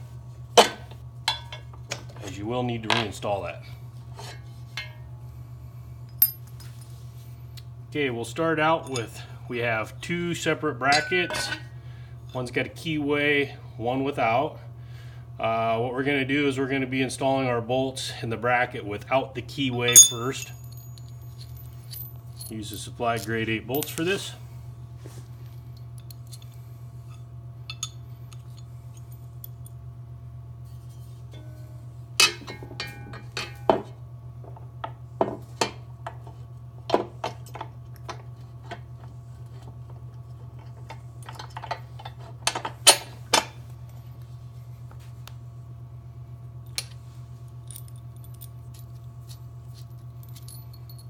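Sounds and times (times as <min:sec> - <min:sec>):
low electrical hum: 0:00.0 - 0:51.0
metal bolts clinking: 0:10.8 - 0:11.7, 0:19.8 - 0:24.1, 0:27.7 - 0:28.6.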